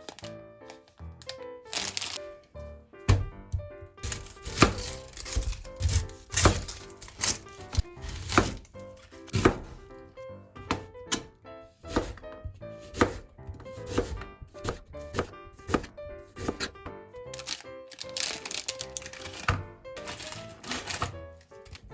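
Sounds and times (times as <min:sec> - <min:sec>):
background music: 0:00.0 - 0:21.9
knife chopping on cutting board: 0:03.1 - 0:10.0, 0:10.6 - 0:16.9.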